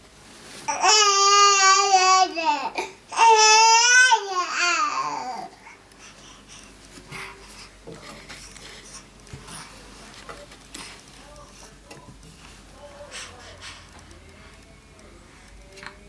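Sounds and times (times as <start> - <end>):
faint knocks and rustles: 6.1 - 14.7.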